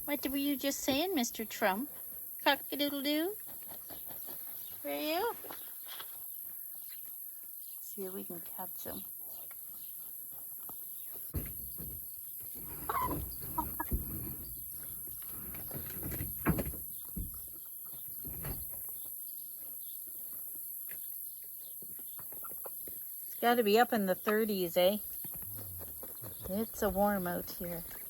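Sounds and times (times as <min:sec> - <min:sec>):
chickens clucking: 0:12.4 - 0:14.4, 0:21.9 - 0:23.0.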